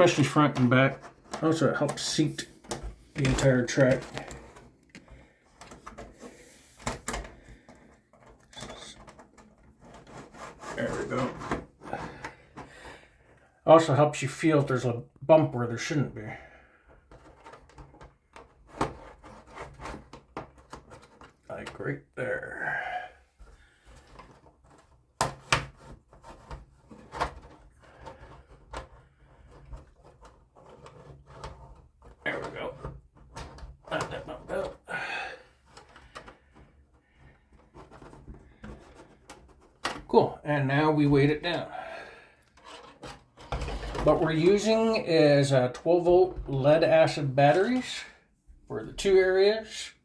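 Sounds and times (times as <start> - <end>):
model track rubbing in plastic: 0.0 - 12.6, 17.1 - 21.5, 23.8 - 34.5, 42.4 - 44.9.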